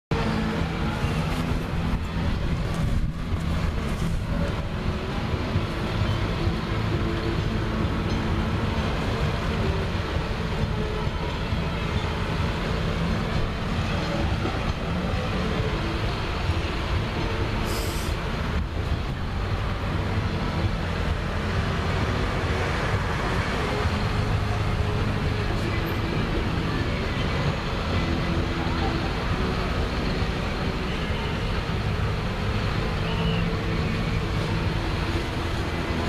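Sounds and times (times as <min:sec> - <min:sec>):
tractor engines droning: 0:00.1 - 0:36.0
brief hiss: 0:17.7 - 0:18.2.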